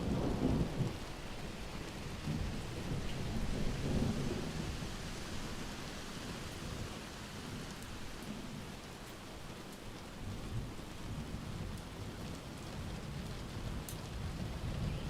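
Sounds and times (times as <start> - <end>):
rumble of thunder: 0.0 - 5.6, 10.2 - 15.0
steady rain: 0.0 - 15.0.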